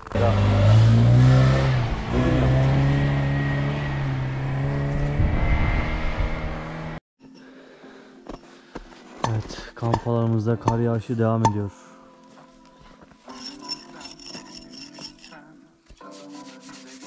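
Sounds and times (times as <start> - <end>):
vehicle engine revving: 0.0 - 7.0.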